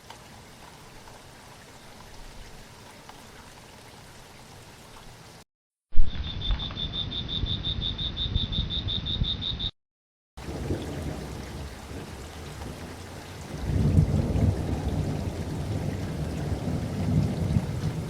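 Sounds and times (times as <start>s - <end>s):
rain: 0.0s - 5.5s, 10.4s - 18.0s
high-pitched chirping: 6.1s - 9.7s
low thunder rumble: 10.4s - 18.0s.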